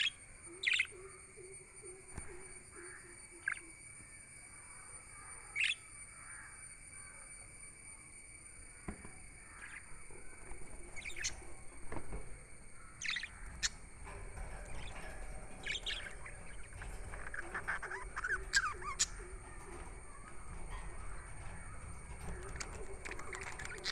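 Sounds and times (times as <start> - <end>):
budgerigars chirping: 13.0 - 19.9.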